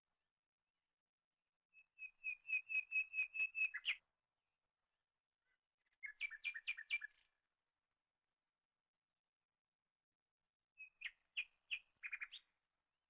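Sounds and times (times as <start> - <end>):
bird whistling notes: 2.2 - 4.0.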